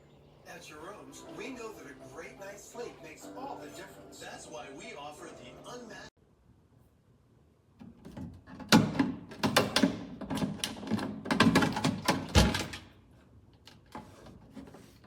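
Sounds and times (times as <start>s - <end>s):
clatter of hard knocks and clicks: 7.8s - 12.9s.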